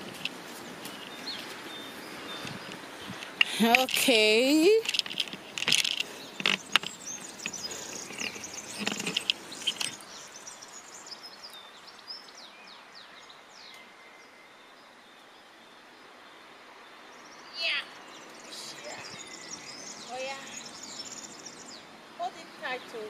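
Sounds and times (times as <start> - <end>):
faint outdoor background noise: 0.0 - 23.0
small birds chirping: 0.0 - 23.0
sharp clicks and knocks: 4.8 - 10.0.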